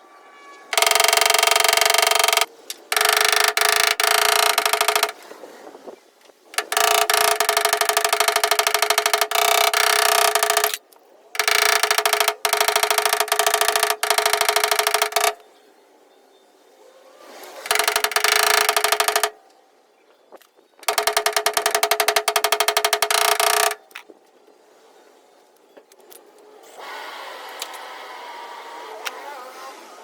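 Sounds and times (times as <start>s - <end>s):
power tool buzzing: 0.7s - 5.2s, 6.6s - 10.8s, 11.4s - 15.4s, 17.7s - 19.3s.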